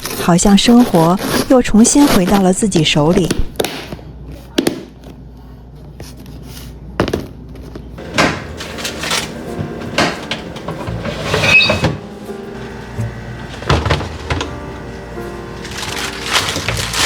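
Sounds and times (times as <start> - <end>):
packages knocking on fridge shelves: 8.0 - 17.0.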